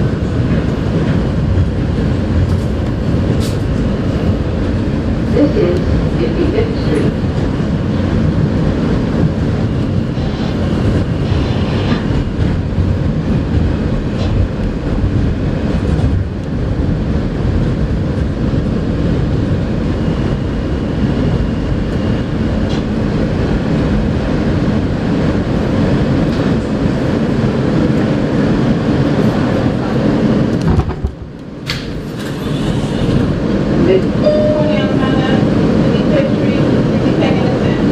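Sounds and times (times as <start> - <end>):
clickety-clack over rail joints: 0.0 - 11.4, 12.0 - 19.2, 30.5 - 33.3
subway wheels rumbling on rail: 0.0 - 37.9.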